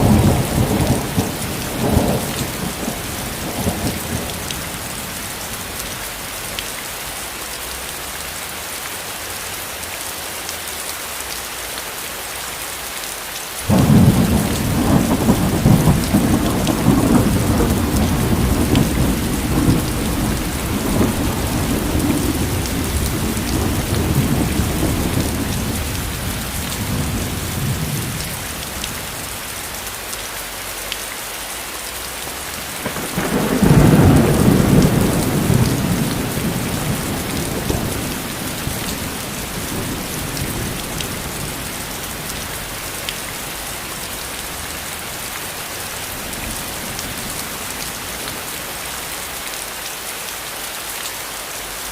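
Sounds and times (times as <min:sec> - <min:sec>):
distant thunder rumbling: 0:00.0 - 0:05.3, 0:13.7 - 0:29.3, 0:32.5 - 0:48.5
heavy rain falling: 0:00.0 - 0:51.9.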